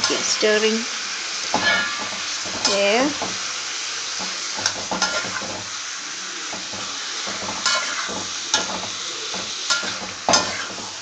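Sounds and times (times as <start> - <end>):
chicken sizzling in a pan: 0.0 - 11.0
utensil scraping and knocking pan: 1.6 - 3.4, 4.2 - 5.7, 6.5 - 11.0.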